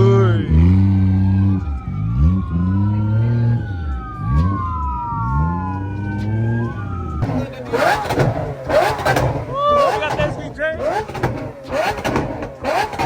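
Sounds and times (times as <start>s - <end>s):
low engine-like drone: 0.0s - 10.2s
police sirens wailing: 0.0s - 13.0s.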